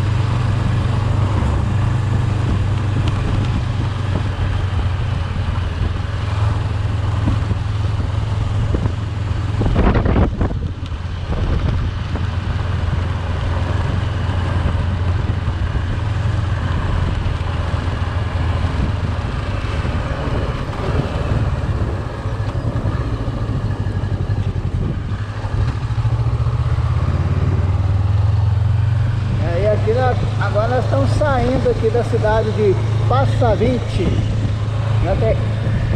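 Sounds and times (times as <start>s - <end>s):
car engine drone: 0.0s - 35.9s
road and tyre noise: 0.0s - 35.9s.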